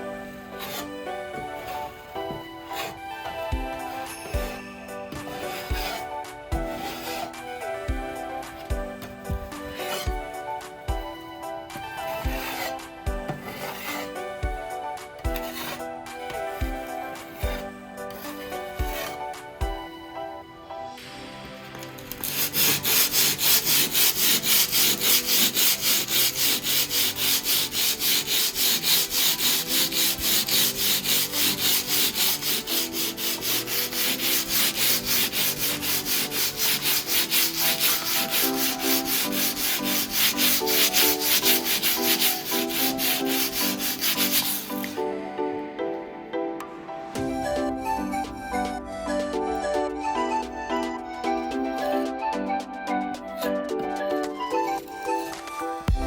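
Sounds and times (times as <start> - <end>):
sanding drywall by hand: 0.0 - 19.5, 22.1 - 45.0
soft background music: 0.0 - 56.0.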